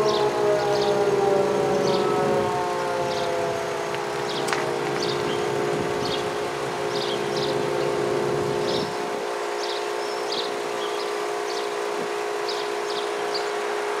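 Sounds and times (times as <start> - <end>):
birds chirping: 0.0 - 13.7
steady warning siren: 0.0 - 14.0.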